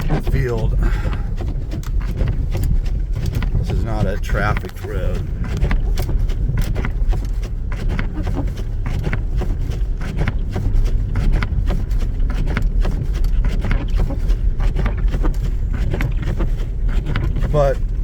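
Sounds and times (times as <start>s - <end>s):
knocks and clicks: 0.0s - 10.6s
car cabin rumble: 0.0s - 18.0s.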